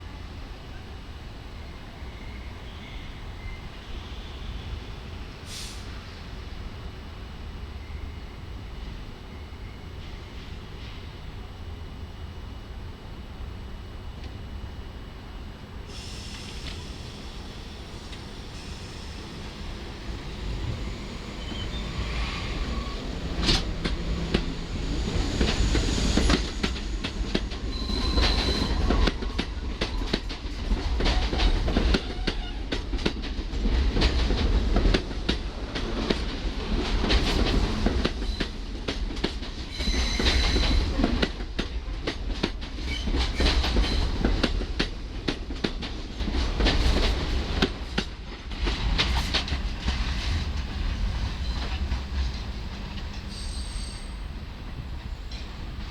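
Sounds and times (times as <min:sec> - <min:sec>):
train rumble: 0:02.7 - 0:55.9
train wheels clattering over rail joints: 0:25.2 - 0:54.0
high-pitched wheel squeals: 0:27.7 - 0:28.8, 0:53.3 - 0:54.3.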